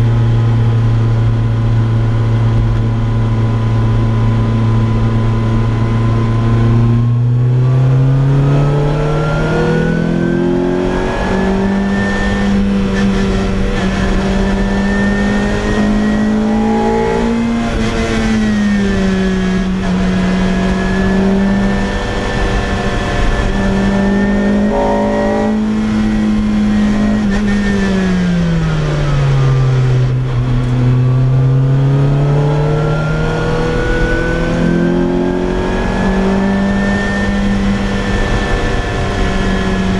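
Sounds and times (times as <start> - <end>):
car engine revving with loud exhaust: 0.0 - 39.9.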